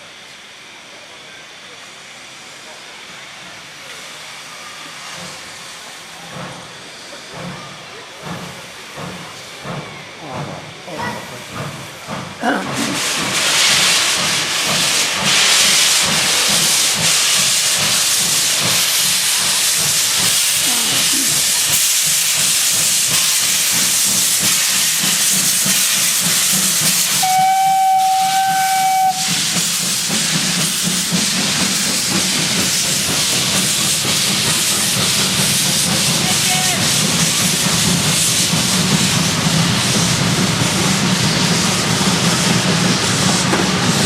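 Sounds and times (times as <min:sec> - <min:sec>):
steam locomotive hissing: 0:00.0 - 0:44.0
steam whistle: 0:27.1 - 0:29.6.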